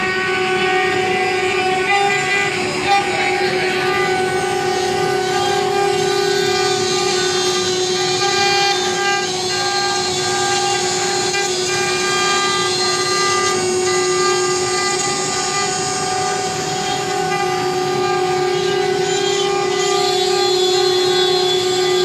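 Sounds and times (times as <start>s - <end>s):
router cutting board: 0.0s - 22.0s
router spindle whine: 0.0s - 22.0s.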